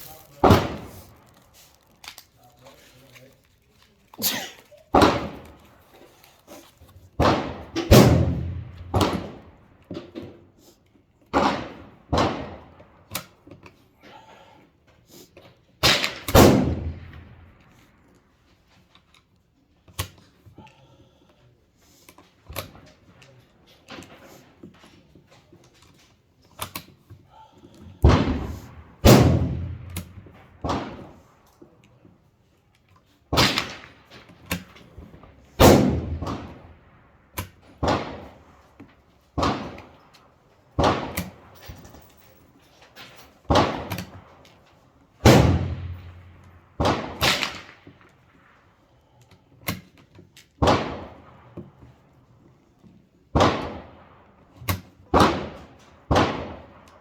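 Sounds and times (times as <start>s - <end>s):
rifle shots: 0.4s - 1.2s, 4.9s - 5.6s, 7.2s - 9.6s, 11.3s - 13.2s, 15.8s - 17.8s, 28.0s - 31.4s, 33.3s - 38.7s, 39.4s - 40.1s, 40.7s - 41.6s, 43.5s - 44.6s, 45.2s - 48.7s, 50.6s - 51.6s, 53.3s - 57.0s
fainter gunshot cracks: 7.2s - 9.4s, 15.8s - 17.2s, 28.0s - 31.1s, 35.6s - 36.7s, 45.2s - 47.8s.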